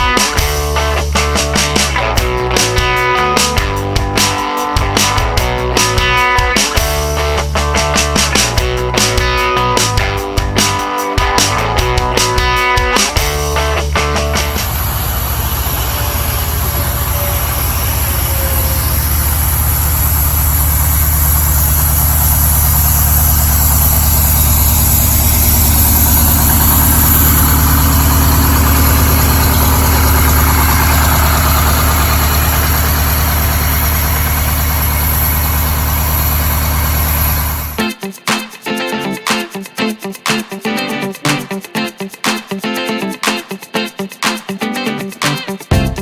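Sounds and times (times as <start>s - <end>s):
diesel truck engine running: 0.4s - 6.2s, 13.2s - 37.8s.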